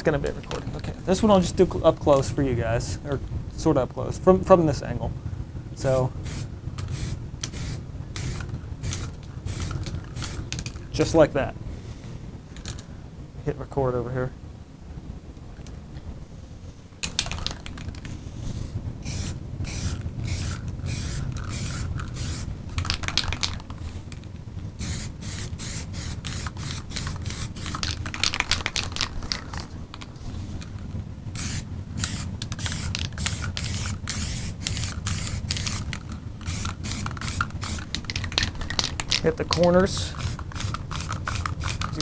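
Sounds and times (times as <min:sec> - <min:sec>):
spray can hissing: 0:06.2 - 0:10.7, 0:18.6 - 0:23.6, 0:24.8 - 0:29.1, 0:31.4 - 0:42.0.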